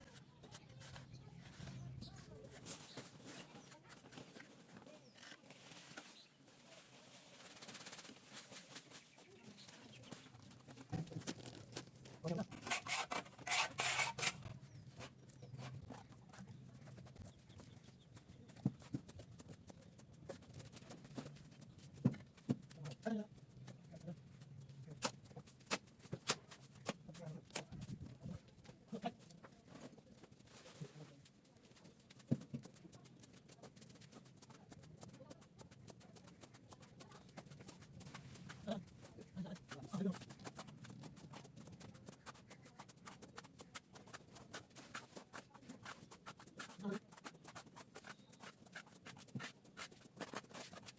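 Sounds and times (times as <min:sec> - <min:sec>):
plastering tool scraping plaster: 0:12.4 - 0:14.4.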